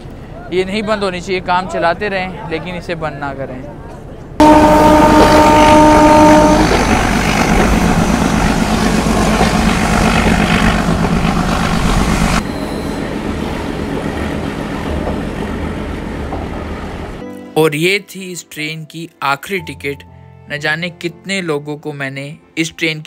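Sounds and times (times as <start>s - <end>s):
moving train coaches: 3.8s - 17.2s
locomotive horn blast: 4.4s - 9.7s.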